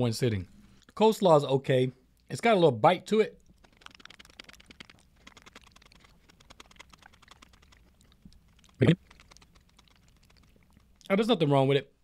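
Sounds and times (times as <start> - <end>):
chewing: 3.4 - 11.1.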